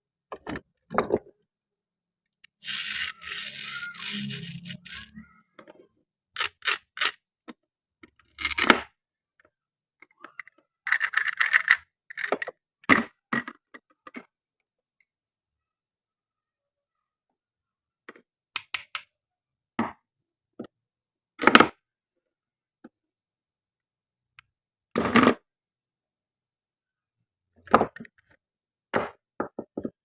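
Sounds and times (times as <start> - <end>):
toy pieces tapping and clicking: 2.5 - 5.2, 6.4 - 7.2, 10.4 - 12.5
toy food pieces rattling: 2.5 - 5.3, 6.3 - 7.2, 8.2 - 8.7, 10.8 - 12.5.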